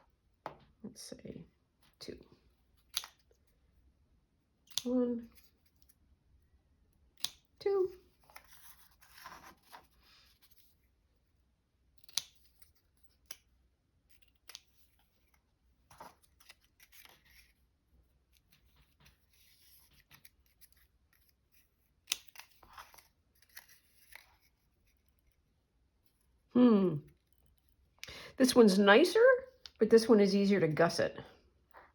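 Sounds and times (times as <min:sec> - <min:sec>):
paper rustling: 0:08.2 - 0:10.8, 0:14.9 - 0:17.7
scissors snipping paper: 0:11.9 - 0:17.6, 0:18.3 - 0:25.4.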